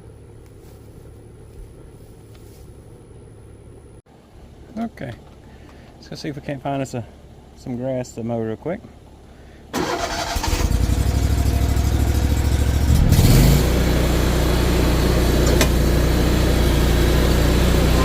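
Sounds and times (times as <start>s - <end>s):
lawnmower engine revving: 9.8s - 18.0s.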